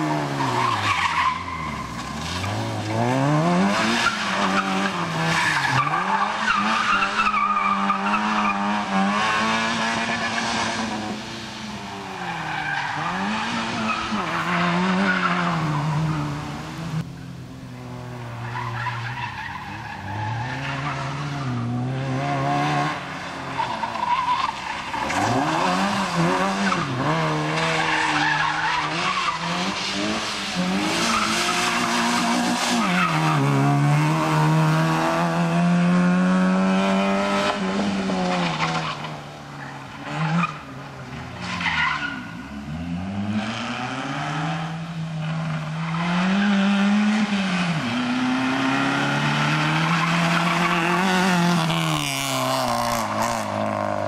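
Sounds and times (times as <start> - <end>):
car engine revving: 0.0 - 11.2, 24.2 - 39.0, 41.4 - 54.0.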